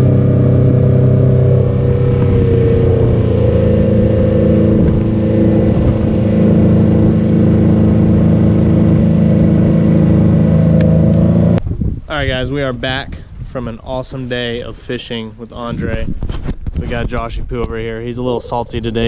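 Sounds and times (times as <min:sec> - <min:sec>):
outboard motor running: 0:00.0 - 0:11.6.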